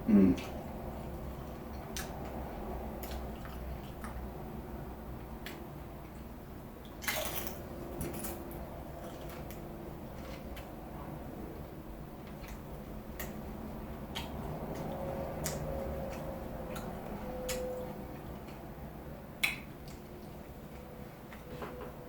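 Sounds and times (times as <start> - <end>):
chewing mouth clicks and smacks: 14.1 - 18.6.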